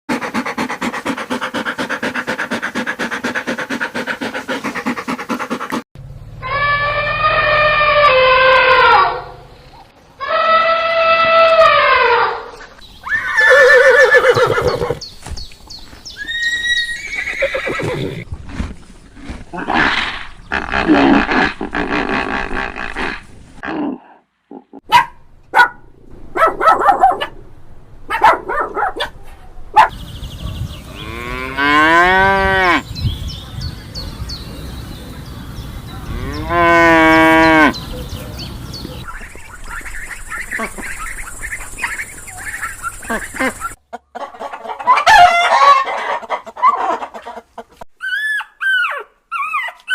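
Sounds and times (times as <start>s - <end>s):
farm animal calls: 6.4s - 15.1s, 29.8s - 49.9s
cattle mooing: 30.9s - 32.9s, 36.0s - 37.8s.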